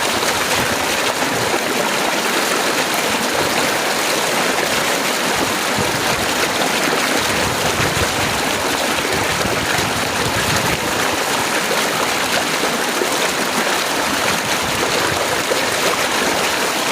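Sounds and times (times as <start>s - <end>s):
heavy rain falling: 0.0s - 16.9s.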